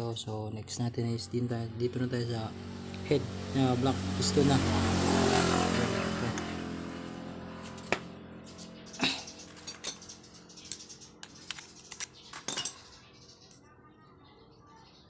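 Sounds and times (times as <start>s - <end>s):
passing vehicle engine hum: 0.4s - 11.8s
tools clicking and knocking: 9.5s - 12.8s.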